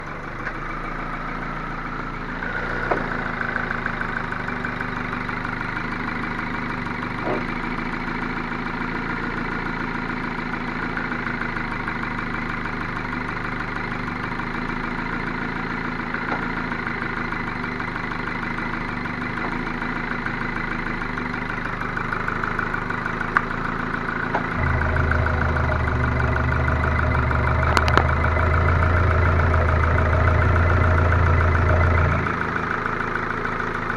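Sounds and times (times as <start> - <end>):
engine knocking: 0.0 - 33.9
deep low hum: 24.4 - 32.4.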